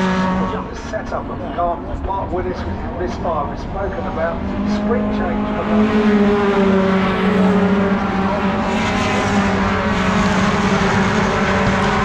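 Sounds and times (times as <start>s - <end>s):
truck engine at high revs: 0.0s - 1.7s, 2.8s - 12.0s.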